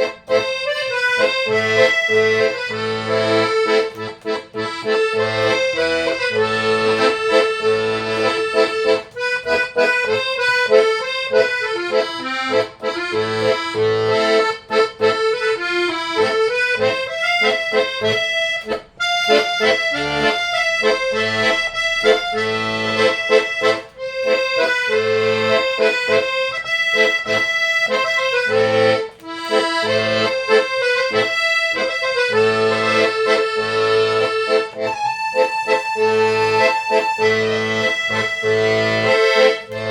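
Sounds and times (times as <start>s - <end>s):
accordion playing melody: 0.0s - 39.9s.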